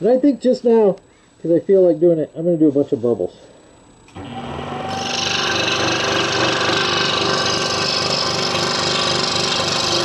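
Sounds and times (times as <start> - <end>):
scroll saw cutting wood: 4.1 - 10.0.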